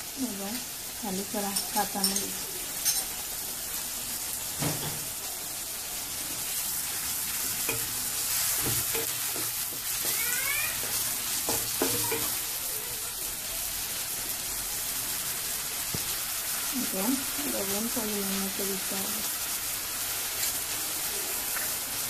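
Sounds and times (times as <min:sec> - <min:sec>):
onions sizzling in hot oil: 0:00.0 - 0:22.0
wooden spatula knocking pan: 0:07.6 - 0:12.4.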